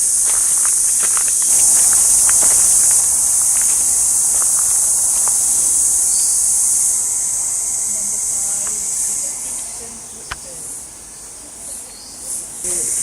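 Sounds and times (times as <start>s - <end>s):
footsteps crunching on track: 0.0s - 9.2s
insect chorus buzzing: 0.0s - 13.0s.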